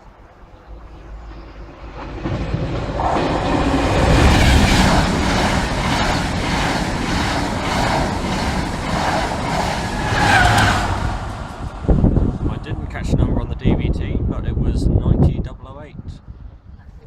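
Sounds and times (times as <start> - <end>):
train rushing past: 0.0 - 15.4
wheels clattering over rails: 1.3 - 12.8.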